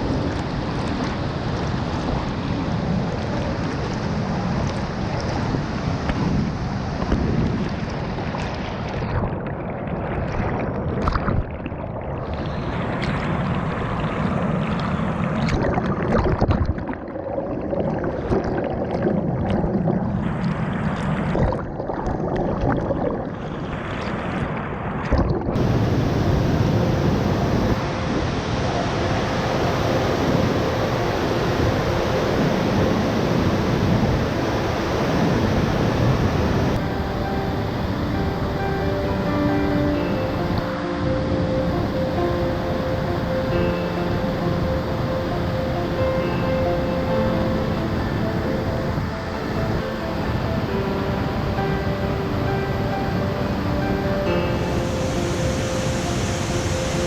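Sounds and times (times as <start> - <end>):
wind buffeting microphone: 0.0 - 16.8, 24.5 - 54.2
waterfall roaring: 25.5 - 57.0.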